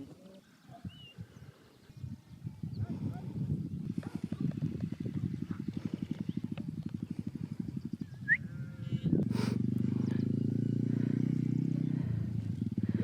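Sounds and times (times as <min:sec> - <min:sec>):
motorcycle engine idling and revving: 0:03.4 - 0:13.0.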